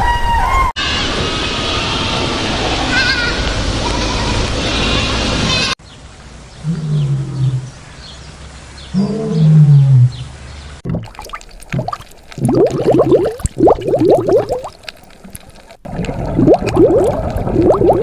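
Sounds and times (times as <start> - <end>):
animal low drawn-out calls: 8.9 - 10.4
water splashing: 10.8 - 18.0.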